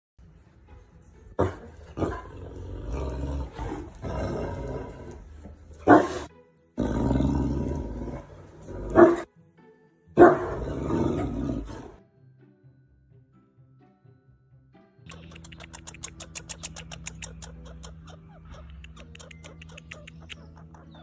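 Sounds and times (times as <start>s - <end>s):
music: 0.2s - 21.0s
animal growling and roaring: 1.9s - 5.4s, 6.0s - 9.3s, 10.3s - 12.0s.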